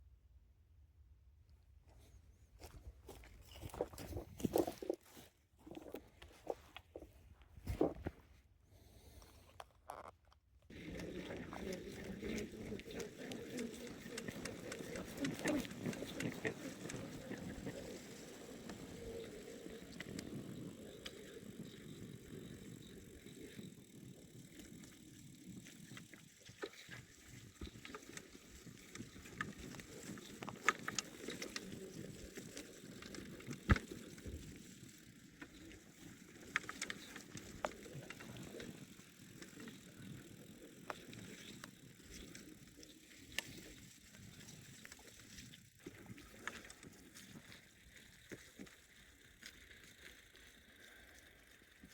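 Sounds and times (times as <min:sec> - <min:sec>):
bicycle tyres rolling: 0:10.7 - 0:51.9.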